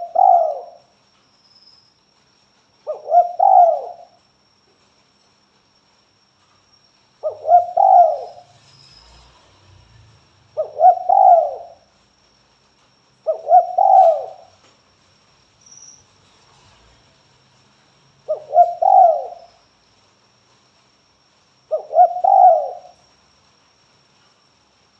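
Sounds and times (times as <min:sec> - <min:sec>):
dove cooing: 0:00.0 - 0:00.8, 0:02.9 - 0:04.1, 0:07.2 - 0:08.5, 0:10.6 - 0:11.8, 0:13.3 - 0:14.6, 0:18.3 - 0:19.4, 0:21.7 - 0:23.0.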